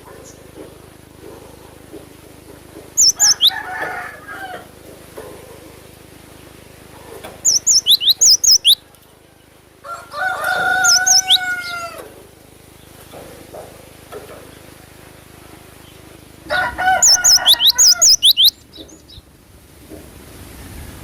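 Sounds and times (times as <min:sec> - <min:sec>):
bird singing high whistled notes: 0:03.0 - 0:03.6, 0:07.4 - 0:08.8, 0:10.8 - 0:11.5, 0:17.0 - 0:18.6
rooster crowing: 0:03.0 - 0:04.9, 0:09.2 - 0:12.3, 0:16.4 - 0:18.5.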